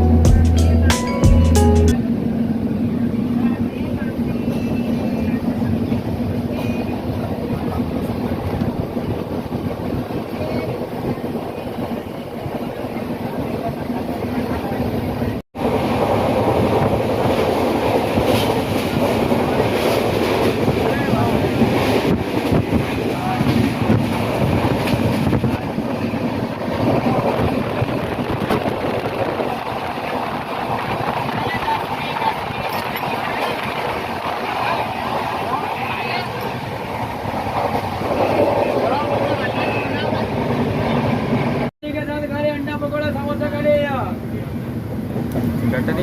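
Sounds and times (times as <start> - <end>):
train rumbling: 0.0 - 46.0.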